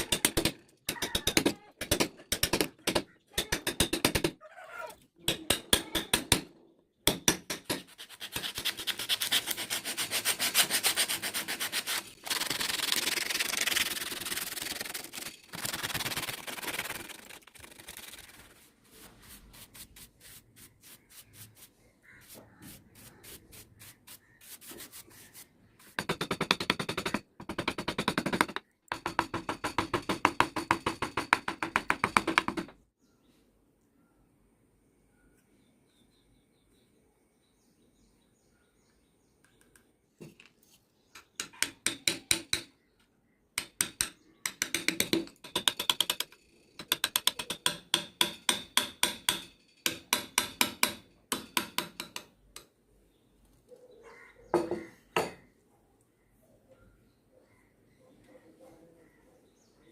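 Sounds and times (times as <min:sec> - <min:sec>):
wood being sanded: 0:07.8 - 0:17.1.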